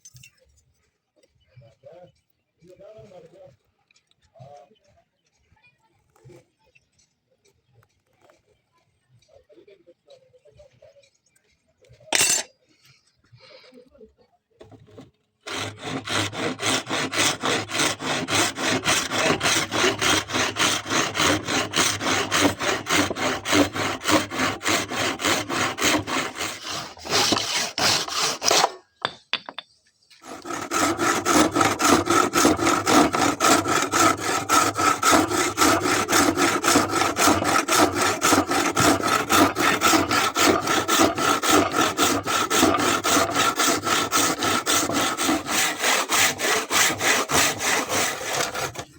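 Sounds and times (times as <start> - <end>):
hand saw sawing: 12.2 - 12.5, 14.7 - 29.6, 30.2 - 48.9.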